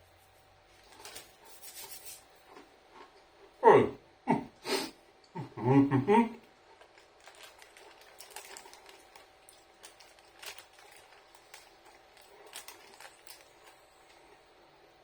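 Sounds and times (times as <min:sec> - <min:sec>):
person chewing crunchy biscuit: 0:06.4 - 0:14.4.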